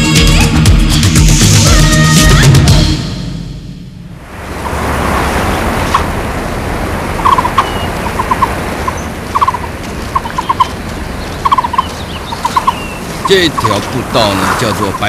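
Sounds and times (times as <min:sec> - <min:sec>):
rushing forest ambience: 0:04.0 - 0:15.0
bird calling short notes: 0:11.4 - 0:13.8.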